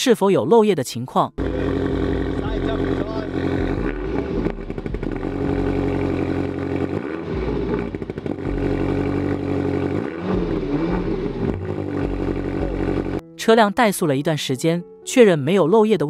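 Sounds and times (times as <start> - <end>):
car engine running: 1.4 - 13.2.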